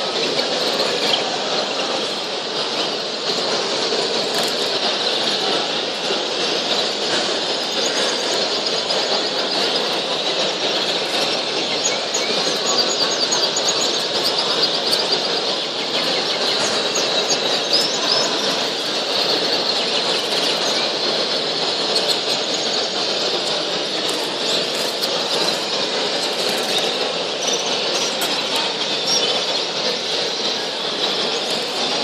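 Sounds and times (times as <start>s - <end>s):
small birds chirping and fluttering: 0.0s - 32.0s
high bird chirps and trills: 6.7s - 23.1s, 23.9s - 32.0s.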